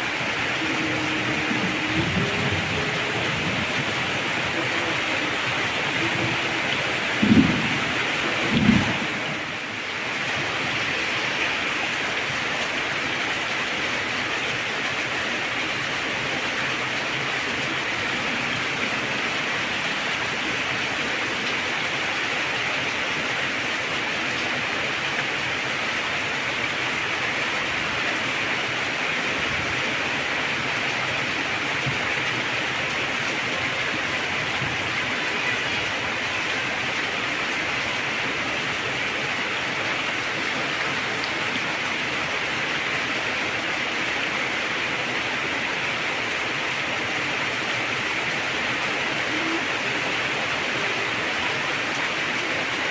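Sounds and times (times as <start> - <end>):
heavy rain falling: 0.0 - 52.9
thunder thump: 7.1 - 9.4.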